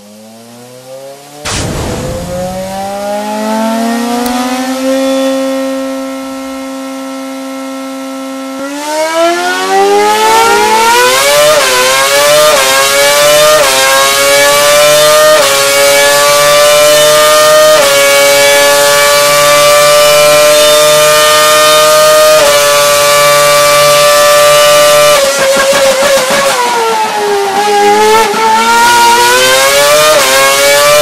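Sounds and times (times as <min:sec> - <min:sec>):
racing car engine revving: 0:00.0 - 0:31.0.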